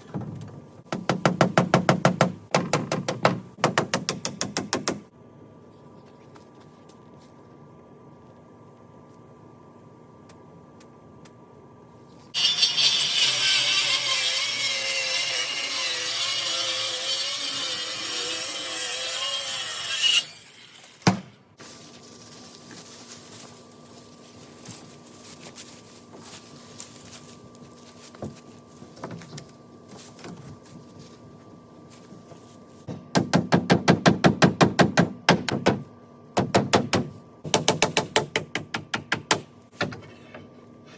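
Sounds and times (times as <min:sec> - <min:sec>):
power saw cutting wood: 0:12.4 - 0:21.0.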